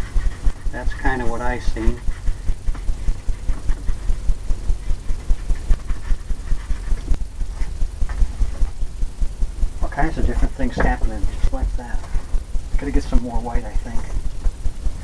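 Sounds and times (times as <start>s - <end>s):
bristles scratching: 0.0s - 8.8s
brush thumping on canvas: 10.2s - 11.4s.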